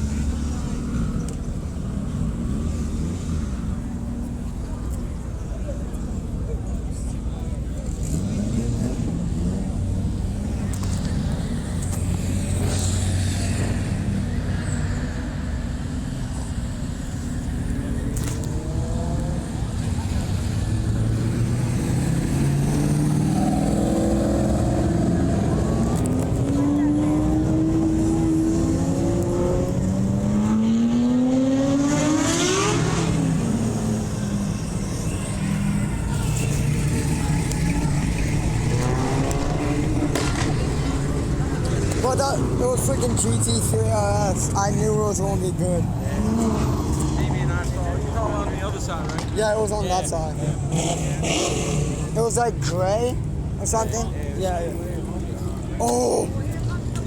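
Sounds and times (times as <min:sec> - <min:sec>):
car engine running: 0:34.0 - 0:43.9.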